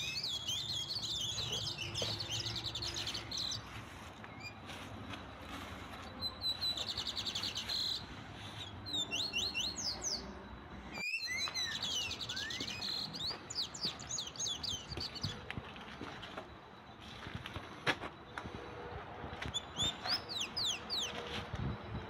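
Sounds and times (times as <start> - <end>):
small birds singing: 0.0 - 22.0.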